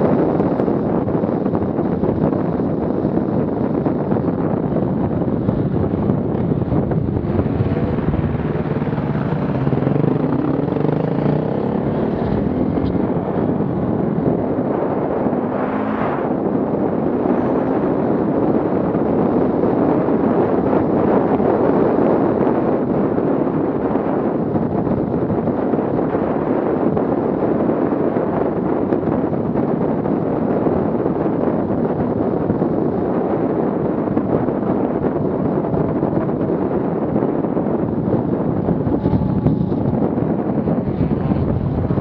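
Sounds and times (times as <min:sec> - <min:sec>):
wind buffeting microphone: 0:00.0 - 0:42.0
off-road vehicle engines revving: 0:06.6 - 0:18.0.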